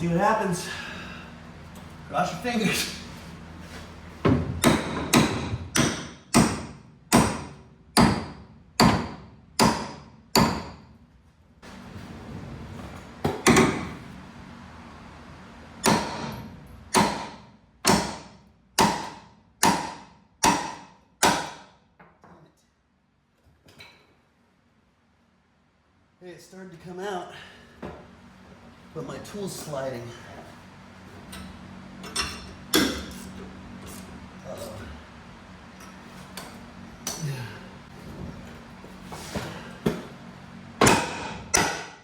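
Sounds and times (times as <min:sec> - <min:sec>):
hammer striking steel: 0:04.6 - 0:10.8, 0:15.8 - 0:21.8, 0:40.8 - 0:42.0.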